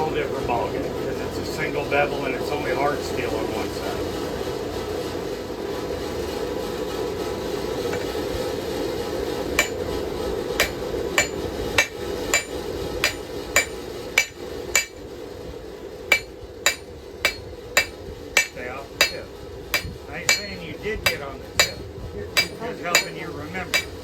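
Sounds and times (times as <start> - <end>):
steady rushing noise: 0.1 - 24.0
hammer striking steel on anvil: 9.5 - 15.1, 16.1 - 24.0.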